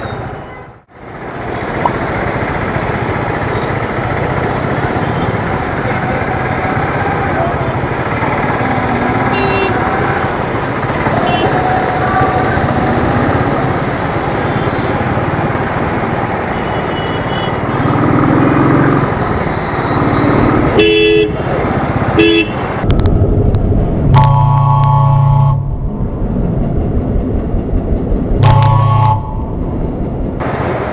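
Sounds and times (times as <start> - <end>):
motorcycle engine: 1.2 - 30.6
car horn honks: 9.2 - 10.0, 20.8 - 21.4, 22.2 - 22.6, 28.4 - 29.4
wind noise: 22.7 - 30.9
steady tone: 22.8 - 30.4.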